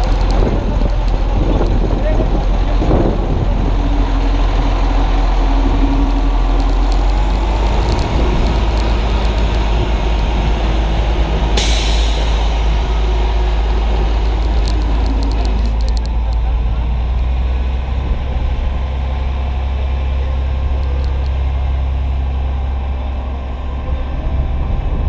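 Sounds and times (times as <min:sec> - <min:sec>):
wind buffeting microphone: 0:00.0 - 0:19.8, 0:20.4 - 0:25.0
burst of hiss: 0:11.6 - 0:12.8.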